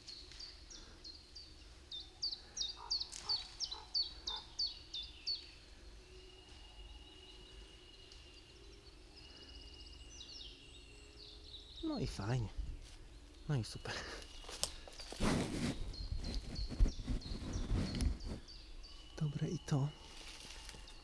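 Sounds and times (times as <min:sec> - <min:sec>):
faint thin steady whistle: 0:06.0 - 0:08.4
songbird singing high notes: 0:18.8 - 0:20.2.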